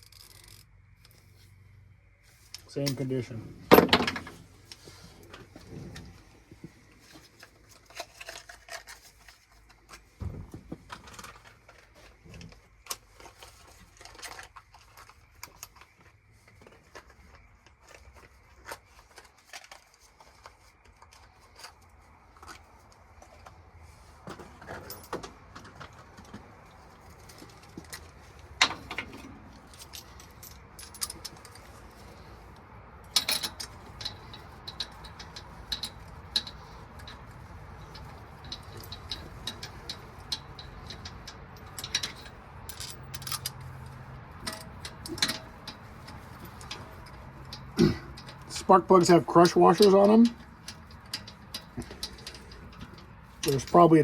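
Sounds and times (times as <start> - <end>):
hand tools clinking: 2.6 - 6.3, 24.3 - 54.0.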